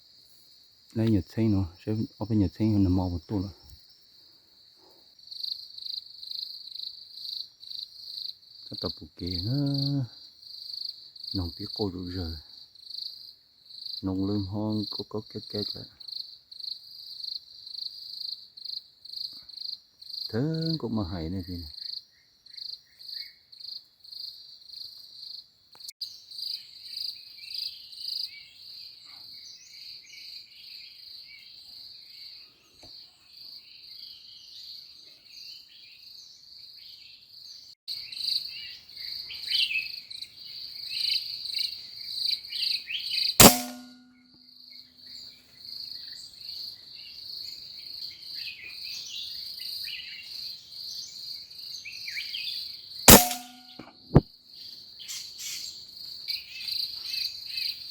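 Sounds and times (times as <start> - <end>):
small birds chirping: 0.0 - 5.2
insects trilling: 0.0 - 25.5
air rifle shot: 43.4 - 44.0, 53.1 - 53.7.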